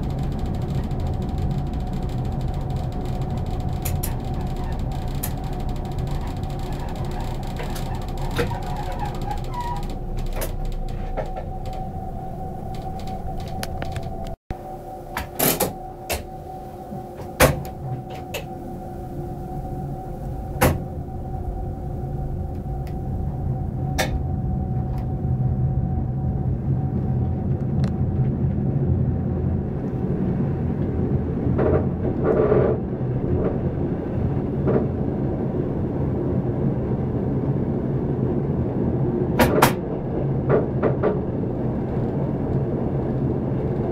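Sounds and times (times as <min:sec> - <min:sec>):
sharp clicks and knocks: 0:00.0 - 0:12.0, 0:12.6 - 0:14.4, 0:39.4 - 0:39.8
train wheels rumbling on track: 0:00.0 - 0:14.4, 0:15.1 - 0:43.9
steady whine: 0:00.0 - 0:43.9.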